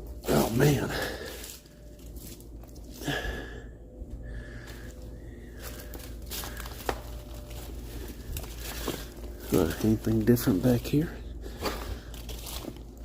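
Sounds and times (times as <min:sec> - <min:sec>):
footsteps in rubber boots: 0:04.0 - 0:10.3.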